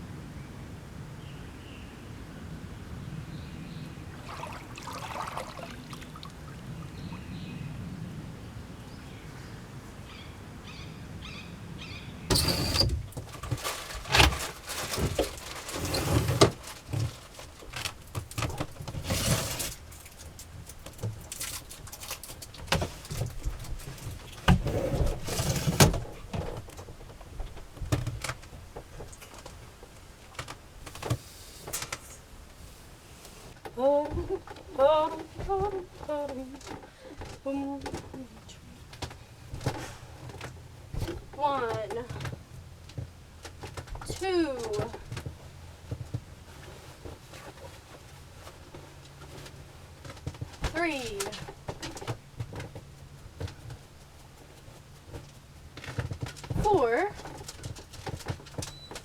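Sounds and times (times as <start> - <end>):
faint background hum: 0.0 - 59.0
irregular knocks and clatter: 38.9 - 59.0.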